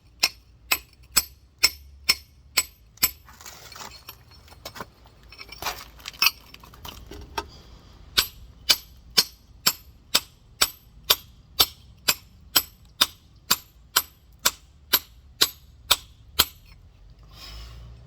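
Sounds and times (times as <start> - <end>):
hammer striking rock: 0.2 - 3.2, 8.2 - 16.7.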